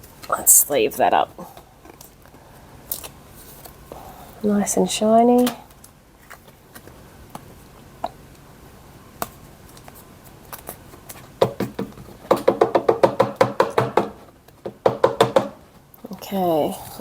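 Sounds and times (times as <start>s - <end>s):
tapping on a hard surface: 11.4s - 15.6s.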